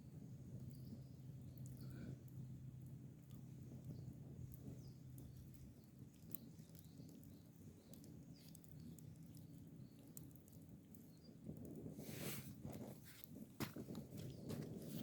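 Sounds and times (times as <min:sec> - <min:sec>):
faint ticks and crackles: 0:00.0 - 0:15.0
low steady hum: 0:00.0 - 0:15.0
faint chirps: 0:00.6 - 0:02.2.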